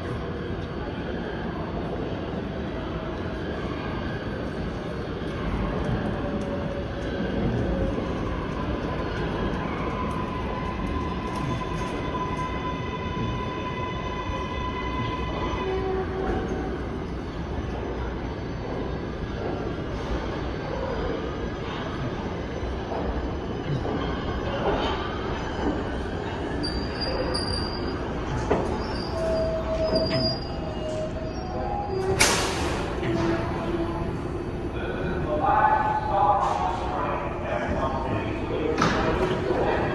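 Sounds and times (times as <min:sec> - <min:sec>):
train rumbling on rails: 0:00.0 - 0:39.9
high wheel squeal: 0:26.2 - 0:34.2.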